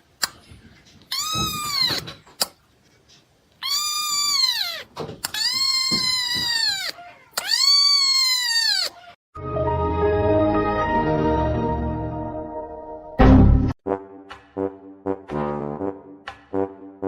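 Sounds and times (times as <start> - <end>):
cat meowing: 1.1 - 2.1, 3.6 - 9.2.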